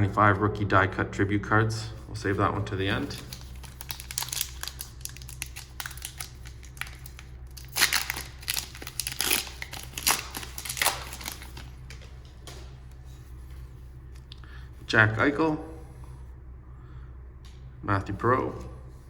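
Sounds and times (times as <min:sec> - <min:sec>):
wrapper crinkling and tearing: 0:03.0 - 0:12.1.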